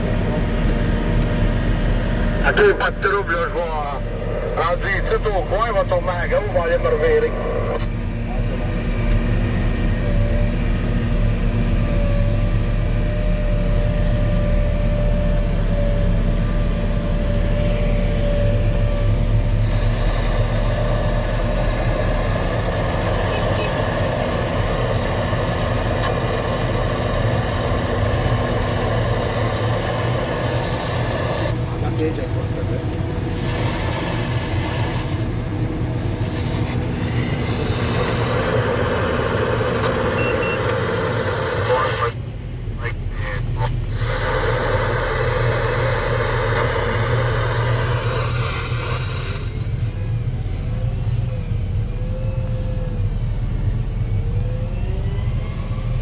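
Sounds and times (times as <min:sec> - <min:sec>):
loader engine drone: 0:00.0 - 0:56.0
dense even noise: 0:33.4 - 0:50.4.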